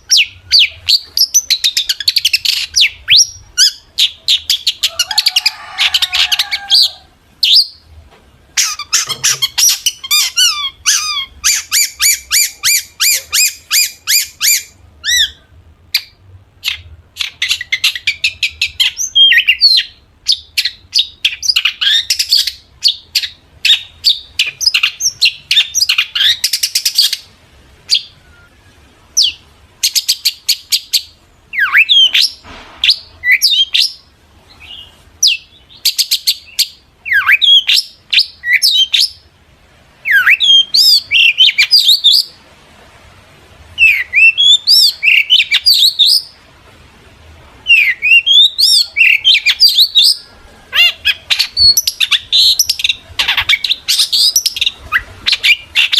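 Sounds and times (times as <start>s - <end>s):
shrike singing: 47.6s - 55.9s.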